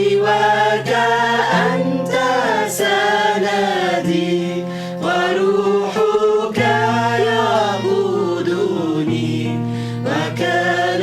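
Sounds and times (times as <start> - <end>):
group singing a hymn: 0.0 - 11.0.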